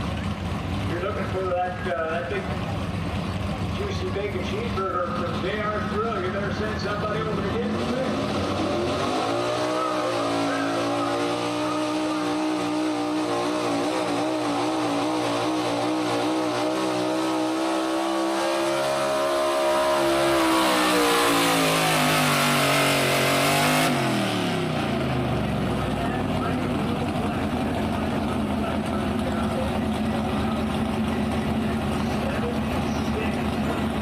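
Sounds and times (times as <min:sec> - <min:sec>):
truck engine revving under load: 0:00.0 - 0:34.0.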